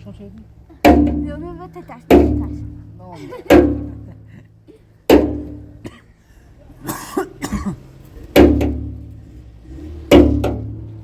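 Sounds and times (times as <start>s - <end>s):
heavy struck thuds with ringing: 0.8s - 4.2s, 5.1s - 5.9s, 8.4s - 9.2s, 10.0s - 10.9s.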